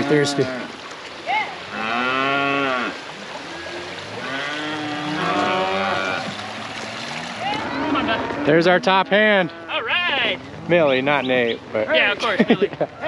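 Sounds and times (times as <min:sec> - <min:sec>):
cattle mooing: 0:00.0 - 0:00.7, 0:01.7 - 0:10.9.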